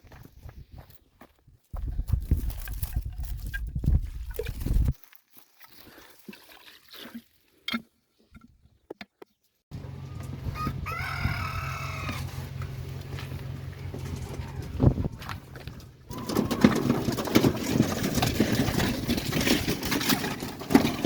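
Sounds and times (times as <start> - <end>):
rooster crowing: 10.0 - 12.4, 16.1 - 16.8.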